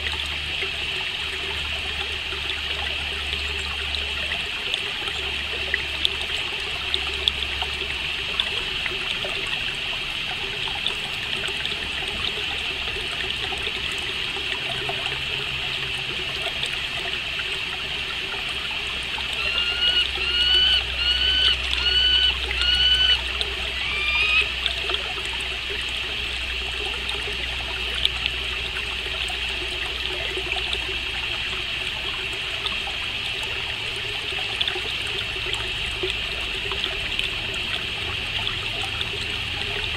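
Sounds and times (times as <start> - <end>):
trickle of flowing water: 0.0 - 39.9
songbird singing: 19.4 - 24.6.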